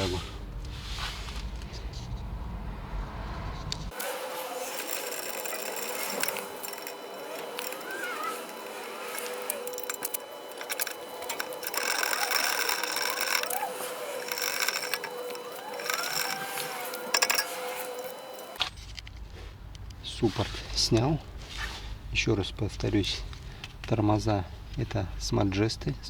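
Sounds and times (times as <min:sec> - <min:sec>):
ratchet wrench clicking: 0:03.9 - 0:18.6.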